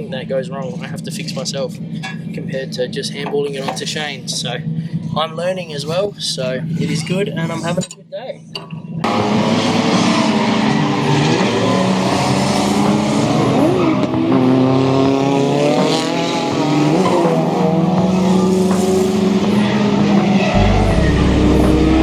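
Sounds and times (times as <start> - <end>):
car engine revving: 9.0 - 22.0.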